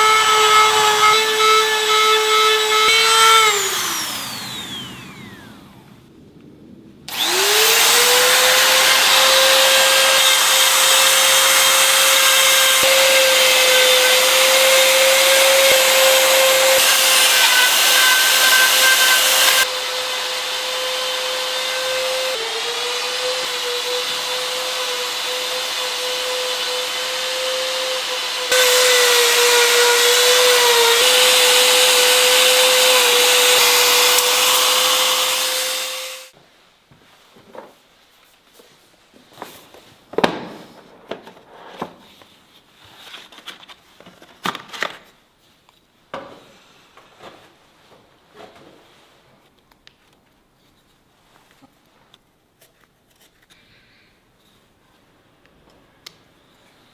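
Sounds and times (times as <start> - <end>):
power tool cutting wood: 0.0 - 5.9, 7.1 - 36.4.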